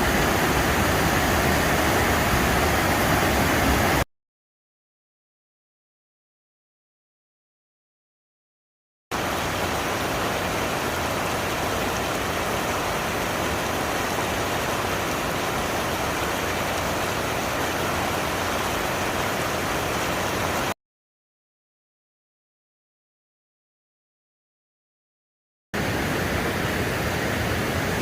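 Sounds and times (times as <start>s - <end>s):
waterfall rushing: 0.0s - 4.0s, 9.2s - 20.8s, 25.8s - 28.0s.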